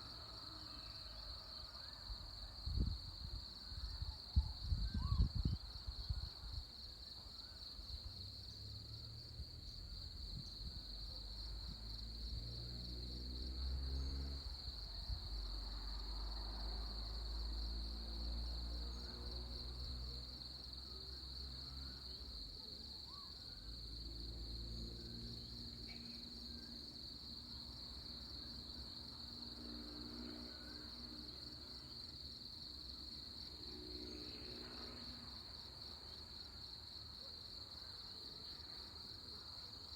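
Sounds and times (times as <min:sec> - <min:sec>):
crickets chirping: 0:00.0 - 0:39.9
faint bird chirps: 0:04.4 - 0:05.6.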